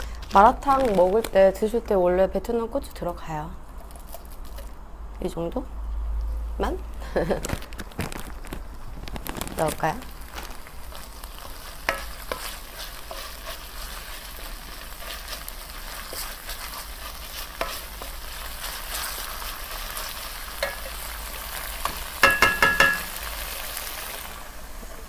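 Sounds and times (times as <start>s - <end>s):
chilies sizzling in oil: 8.3s - 25.0s
ringing metal knocks on pan: 22.2s - 23.1s.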